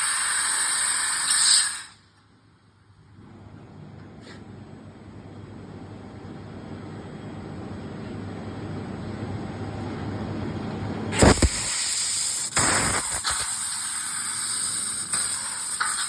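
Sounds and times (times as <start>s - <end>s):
laser cutting with air hiss: 0.0s - 2.0s, 11.1s - 16.0s.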